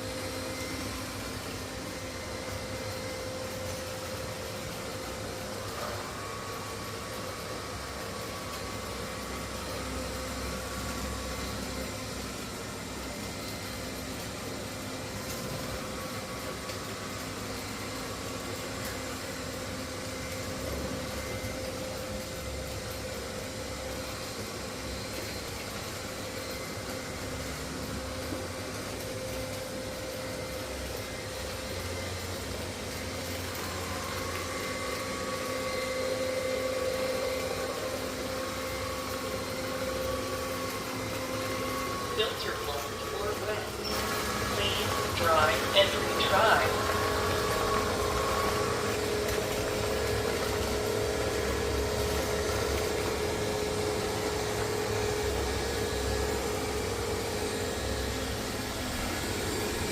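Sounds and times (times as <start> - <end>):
robot vacuum cleaner humming: 0.0 - 59.9.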